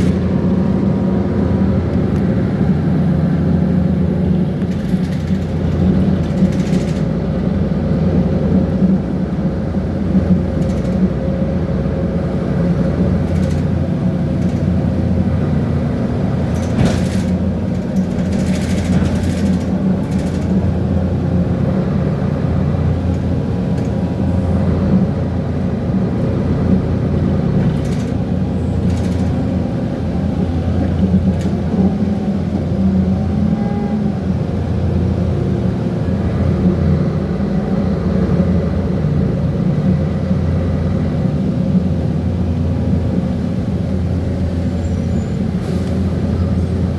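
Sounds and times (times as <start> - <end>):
bus diesel engine running: 0.0 - 46.9
cooling fan whirring: 0.0 - 46.9
loose parts rattling: 27.6 - 29.6.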